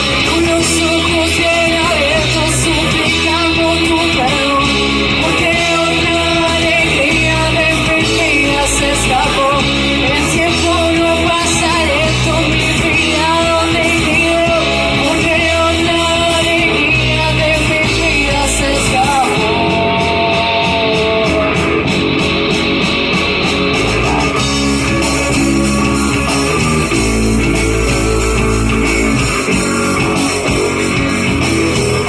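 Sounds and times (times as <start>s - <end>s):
person singing: 0.0s - 22.3s
electric guitars: 0.0s - 32.0s.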